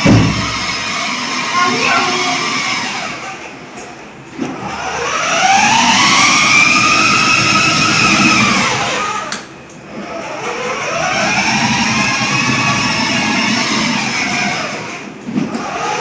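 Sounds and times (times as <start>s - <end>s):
toy car electric motor whining: 0.4s - 3.4s, 4.7s - 9.3s, 10.0s - 16.0s.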